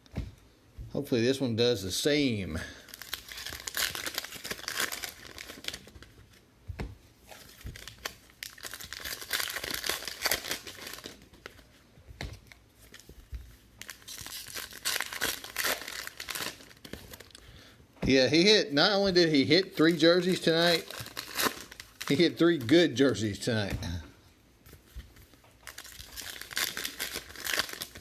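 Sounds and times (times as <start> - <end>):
plastic wrapping tearing and crinkling: 2.8 - 6.3, 7.2 - 11.6, 13.8 - 17.4, 19.6 - 23.1, 25.2 - 28.0.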